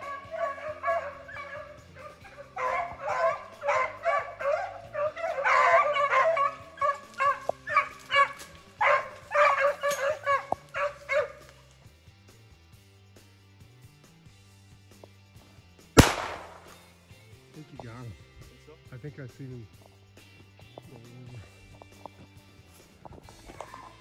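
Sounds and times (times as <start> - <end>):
hounds baying: 0.0 - 11.7.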